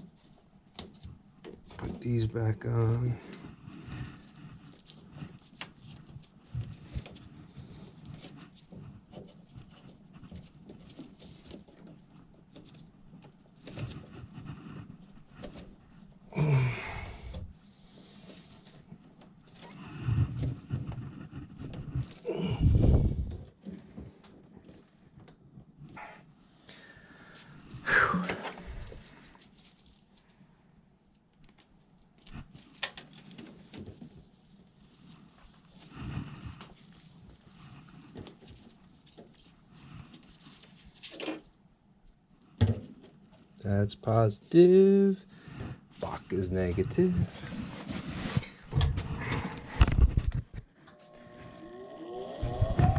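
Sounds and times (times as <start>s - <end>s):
small clicks and knocks of parts: 31.1s - 34.2s.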